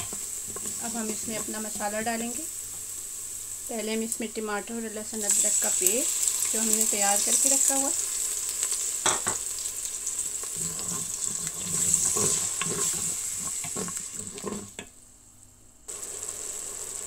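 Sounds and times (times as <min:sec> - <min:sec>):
wooden spoon stirring and scraping: 0:00.0 - 0:02.1, 0:10.4 - 0:14.9
paste sizzling in hot oil: 0:00.0 - 0:14.9, 0:15.9 - 0:17.0.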